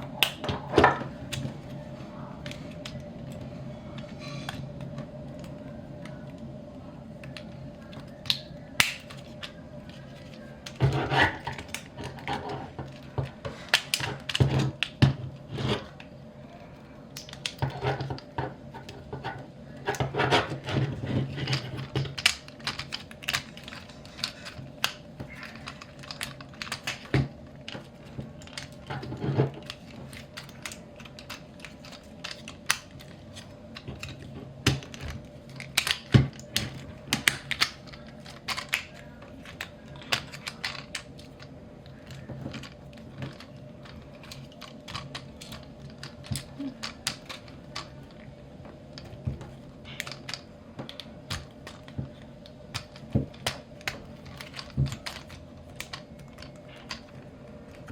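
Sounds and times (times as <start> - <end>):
plastic toy parts clicking: 7.2 - 15.1, 17.1 - 48.3, 48.9 - 57.9.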